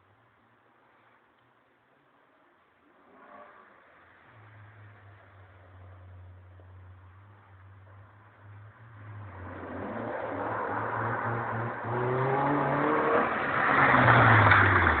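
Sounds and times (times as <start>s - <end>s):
car accelerating hard: 8.8s - 15.0s.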